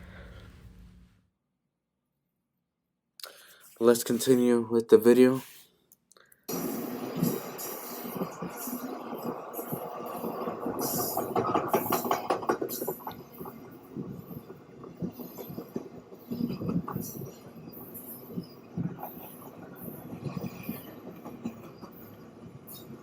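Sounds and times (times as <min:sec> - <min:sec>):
train rumbling past: 0:00.0 - 0:01.1, 0:06.5 - 0:23.0
wheel clatter: 0:07.2 - 0:23.0.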